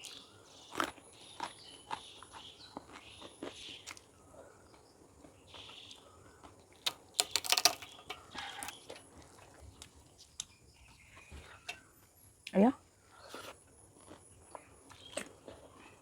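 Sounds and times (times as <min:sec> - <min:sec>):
chewing and mouth clicks: 0:00.0 - 0:10.6, 0:13.3 - 0:16.0
loud crisp crunching: 0:06.7 - 0:09.4.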